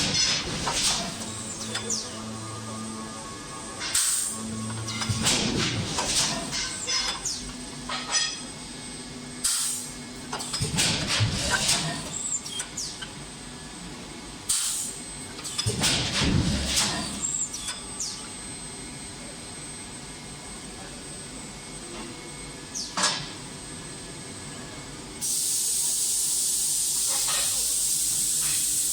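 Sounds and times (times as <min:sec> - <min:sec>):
machine hum with high whine: 0:00.0 - 0:28.9
loud steady hiss: 0:25.2 - 0:28.9.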